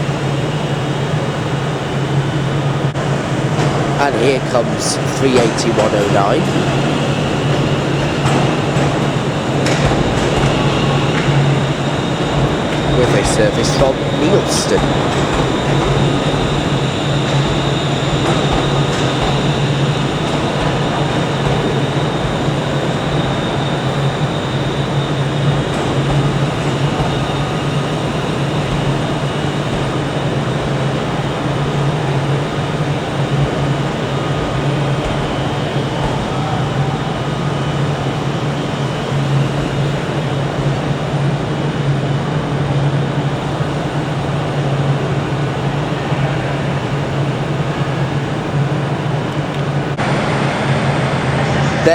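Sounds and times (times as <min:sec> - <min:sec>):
station background noise: 0:00.0 - 0:51.9
train motor droning: 0:00.0 - 0:51.9.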